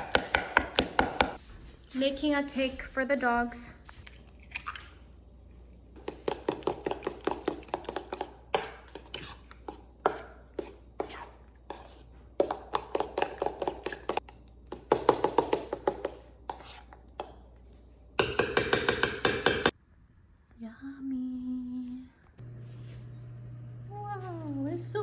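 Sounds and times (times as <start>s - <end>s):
knife chopping on cutting board: 0.0s - 1.4s, 6.0s - 17.4s, 18.2s - 19.7s.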